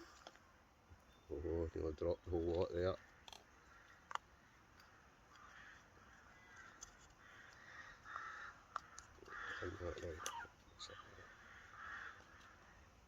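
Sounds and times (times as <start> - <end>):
crows cawing: 2.7 - 13.0.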